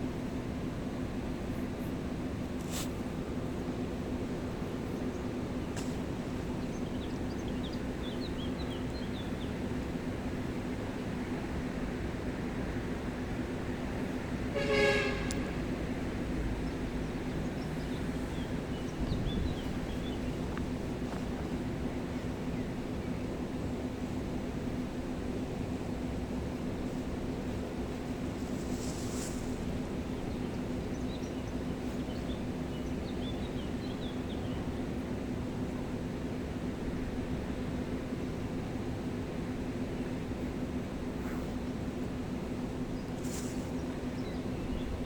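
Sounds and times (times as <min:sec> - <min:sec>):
short horn toot: 0:14.5 - 0:15.7.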